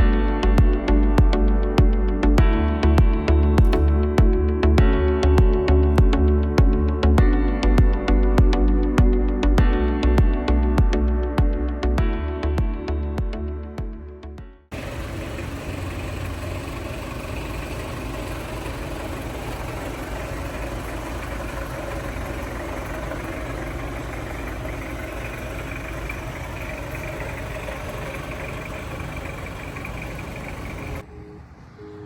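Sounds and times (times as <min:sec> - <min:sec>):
diesel engine idling: 0:14.7 - 0:32.0.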